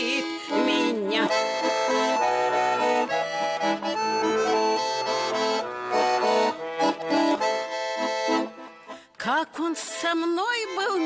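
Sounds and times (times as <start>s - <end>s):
accordion melody: 0.0s - 11.0s.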